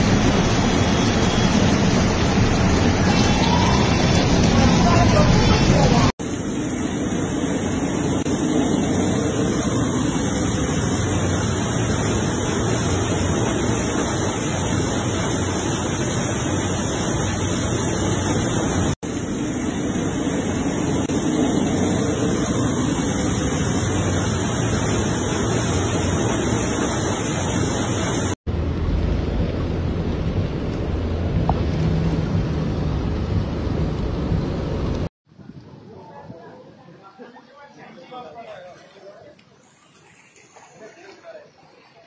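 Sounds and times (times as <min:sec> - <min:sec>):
heavy rain: 0:00.0 - 0:35.1
rushing floodwater: 0:00.0 - 0:35.1, 0:37.6 - 0:42.0.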